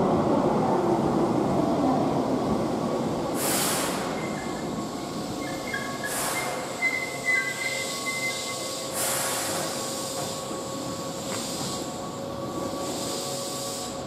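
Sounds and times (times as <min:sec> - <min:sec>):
electric train humming: 0:00.0 - 0:14.0
short sharp hisses: 0:03.4 - 0:04.2, 0:06.0 - 0:06.8, 0:07.6 - 0:10.4
faint high squealing tones: 0:05.3 - 0:08.9.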